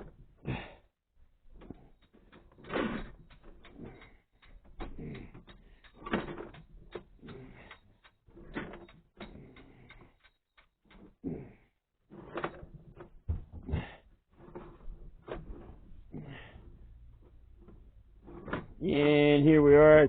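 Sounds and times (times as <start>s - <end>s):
camera cable knocking and scraping: 14.4s - 16.0s, 17.2s - 18.8s.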